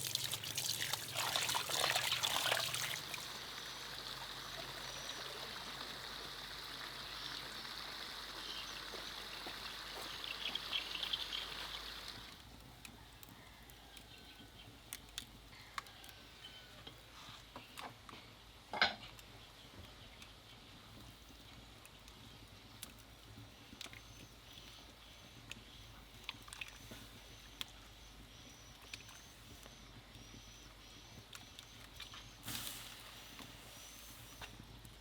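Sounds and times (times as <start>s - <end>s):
water trickling: 0.0s - 12.4s.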